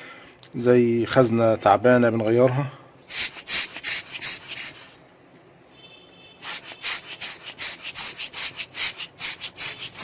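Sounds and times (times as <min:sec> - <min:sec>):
quick rubbing strokes: 0:03.1 - 0:05.0, 0:06.4 - 0:10.0.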